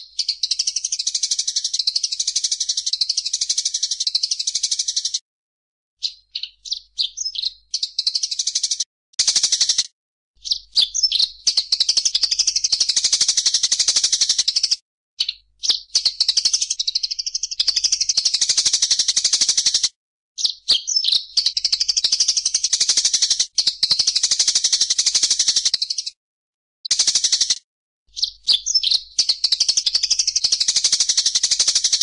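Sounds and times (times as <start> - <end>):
songbird trilling: 6.0 - 8.5, 10.4 - 12.7, 20.4 - 22.4, 28.1 - 32.0.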